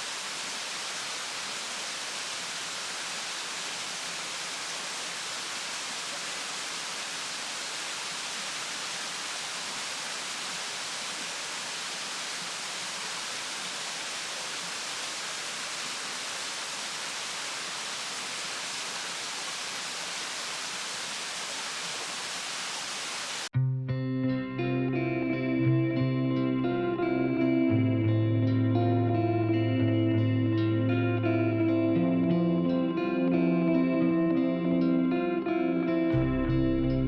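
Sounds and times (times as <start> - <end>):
steady hiss: 0.0 - 23.5
guitar music: 23.6 - 37.0.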